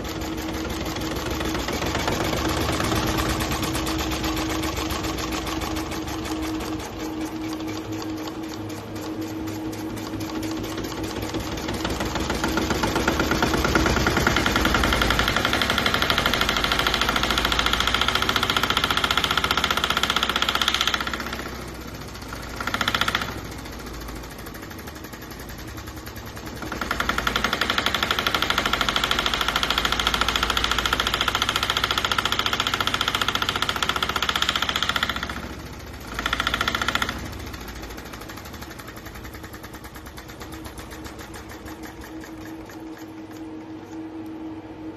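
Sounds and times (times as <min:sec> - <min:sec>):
model diesel engine knocking: 0:00.0 - 0:43.1.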